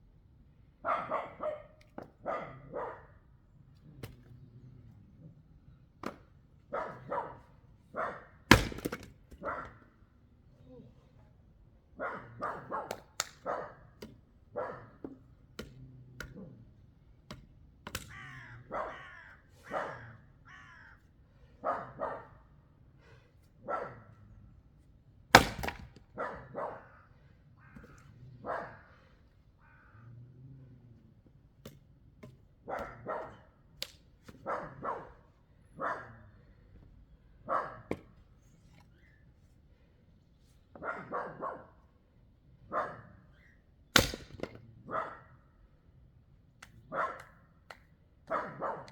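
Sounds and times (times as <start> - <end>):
axe striking wood: 6.0 - 6.3, 8.5 - 9.4, 17.3 - 18.1, 25.3 - 26.0, 44.0 - 44.6
harsh animal calls: 18.1 - 21.0.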